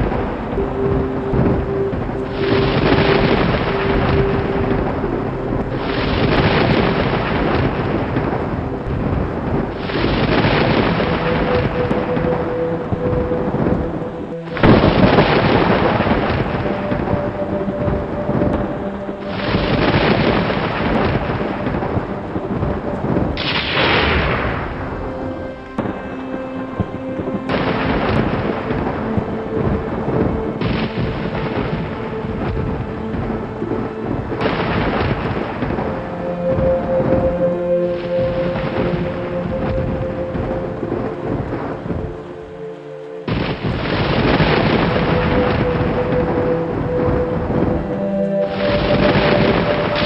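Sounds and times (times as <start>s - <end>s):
thunder rumbling: 0.0s - 37.4s, 43.3s - 50.0s
rain: 0.0s - 50.0s
soft sustained music tones: 0.0s - 50.0s
loud thunderclap: 34.3s - 35.9s.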